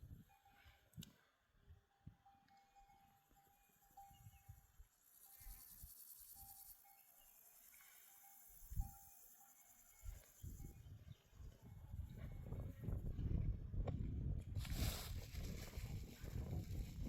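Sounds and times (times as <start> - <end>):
insect chirring: 3.1 - 10.8.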